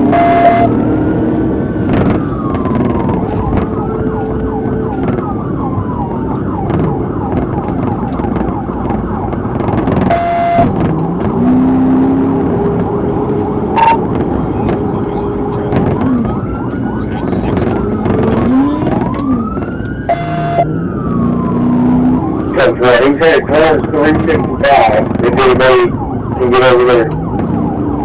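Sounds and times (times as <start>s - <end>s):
short electronic beeps: 0.0s - 0.8s, 10.1s - 10.8s, 13.8s - 14.0s, 20.1s - 20.7s
engine and road noise: 0.0s - 28.0s
police siren wailing and yelping: 0.0s - 28.0s
radio static burst: 13.8s - 14.0s.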